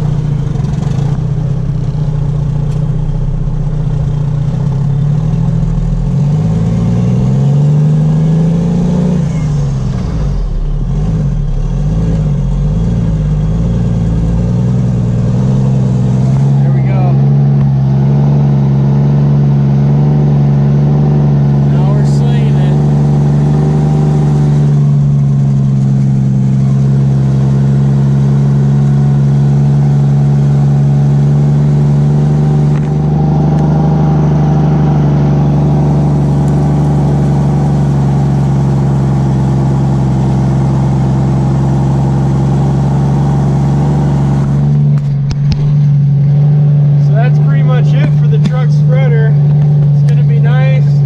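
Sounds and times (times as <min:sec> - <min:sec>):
clatter: 0:00.0 - 0:16.6, 0:21.3 - 0:33.7, 0:43.8 - 0:51.0
truck engine droning: 0:00.0 - 0:51.0.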